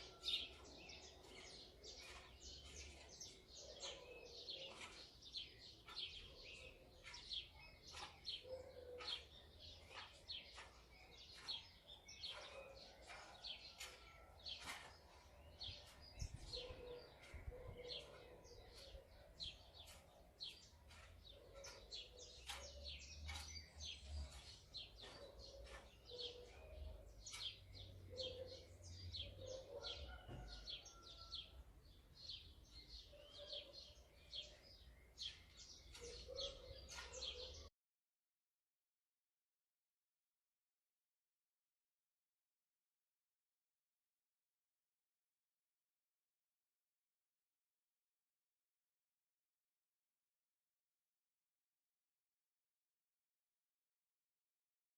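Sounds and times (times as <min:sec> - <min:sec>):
sparrows chirping: 0:00.0 - 0:37.7.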